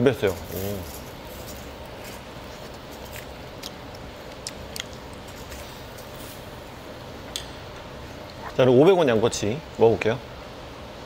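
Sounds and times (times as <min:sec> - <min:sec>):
low room hum: 0:00.0 - 0:11.0
faint chewing: 0:00.6 - 0:06.4.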